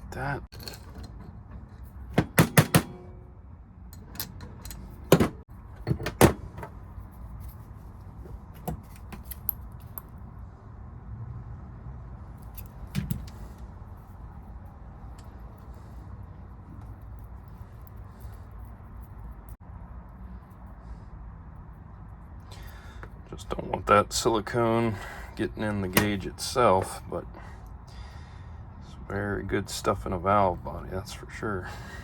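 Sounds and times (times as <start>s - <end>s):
metal parts clicking and clinking: 0.5s - 3.3s, 3.9s - 7.6s.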